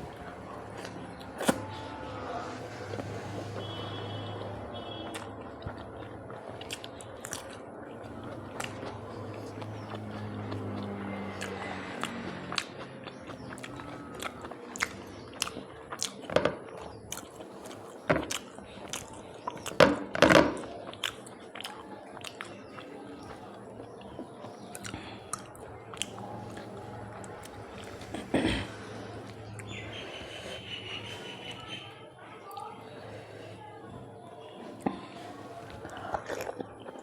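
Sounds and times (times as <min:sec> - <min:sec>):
person chewing and lip smacking: 0:00.1 - 0:01.8, 0:02.9 - 0:31.7, 0:34.8 - 0:37.0.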